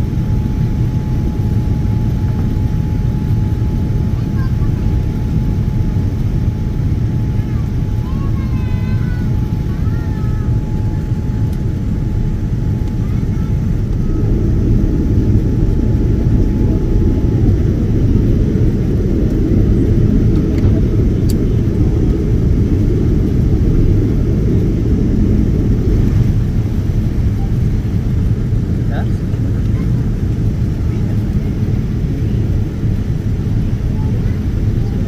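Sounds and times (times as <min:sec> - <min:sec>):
airliner cabin engine rumble: 0:00.0 - 0:35.0.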